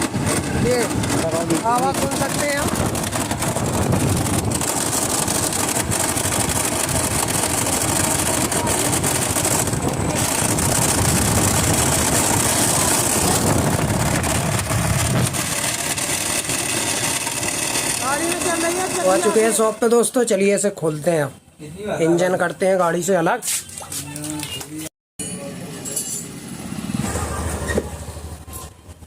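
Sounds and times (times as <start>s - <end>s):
gearbox grinding rattle: 0.0s - 19.6s
motorcycle engine running: 0.0s - 19.9s, 26.2s - 29.0s.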